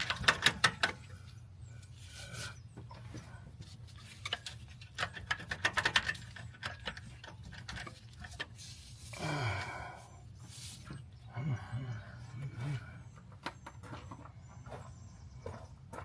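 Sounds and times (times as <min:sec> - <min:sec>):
low steady hum: 0:06.2 - 0:16.0
person grunting: 0:09.2 - 0:10.0, 0:11.3 - 0:12.9.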